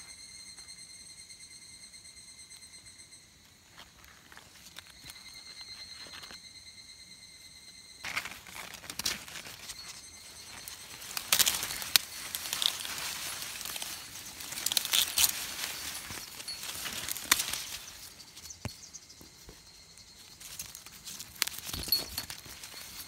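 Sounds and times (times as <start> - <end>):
crackling and tearing: 8.0 - 18.7, 20.4 - 23.0
dry material crinkling and rustling: 8.0 - 18.8, 20.2 - 23.0.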